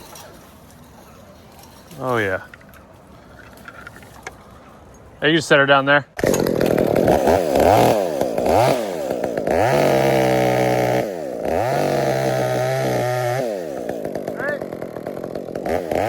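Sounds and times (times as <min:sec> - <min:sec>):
chainsaw engine revving: 0:06.2 - 0:16.0.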